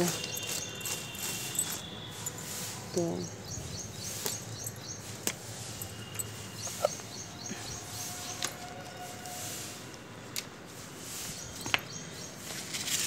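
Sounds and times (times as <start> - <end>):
leaves and stems clicking: 0.0 - 1.8
small birds chirping: 0.0 - 8.6, 11.0 - 12.8.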